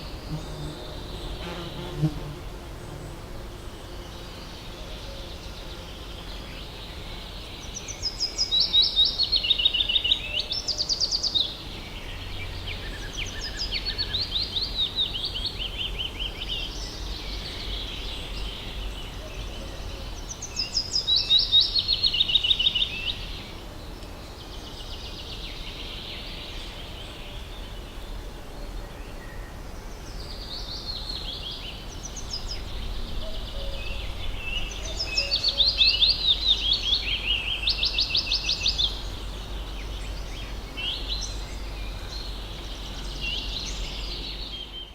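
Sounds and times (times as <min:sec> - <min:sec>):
bird song with fast trills: 0:00.0 - 0:44.9.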